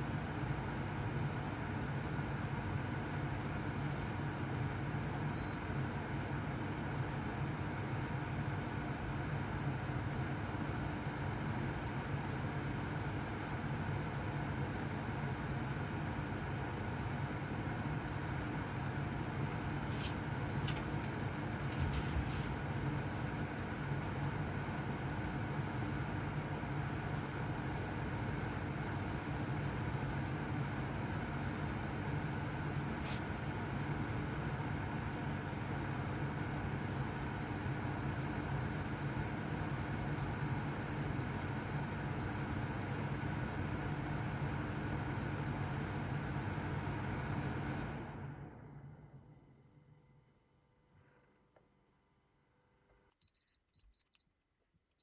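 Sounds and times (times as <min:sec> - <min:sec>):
air conditioner hum: 0:00.0 - 0:53.4.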